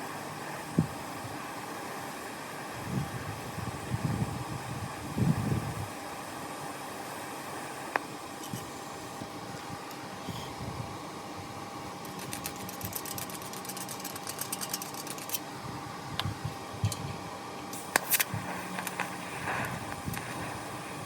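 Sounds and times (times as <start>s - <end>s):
welder machine hum: 0.0s - 21.0s
welding arc crackling: 11.9s - 15.4s, 17.7s - 21.0s
sharp clicks: 12.0s - 15.4s.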